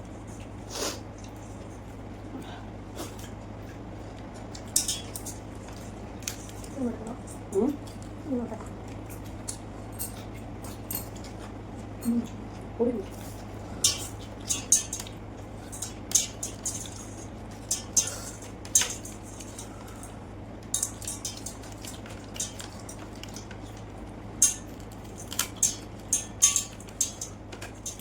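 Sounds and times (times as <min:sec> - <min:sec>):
steady low hum: 0:00.0 - 0:28.0
clinks against a plate: 0:04.6 - 0:05.4, 0:09.1 - 0:11.3, 0:13.8 - 0:23.8, 0:24.4 - 0:28.0.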